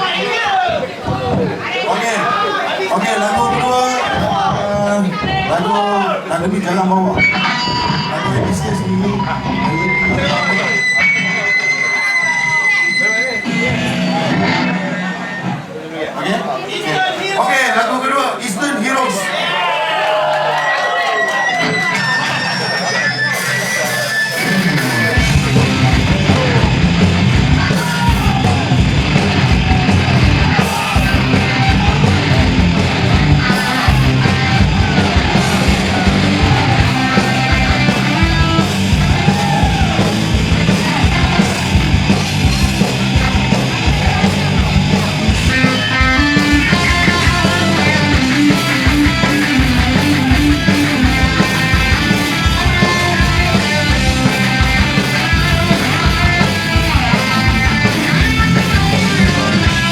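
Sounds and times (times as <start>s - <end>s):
shouted vocals: 0.0s - 15.2s, 16.6s - 59.9s
drums driving a beat: 3.3s - 5.8s, 21.2s - 59.9s
electric guitars: 6.7s - 15.8s, 21.2s - 59.9s
bass guitar: 7.1s - 15.7s, 21.6s - 59.9s.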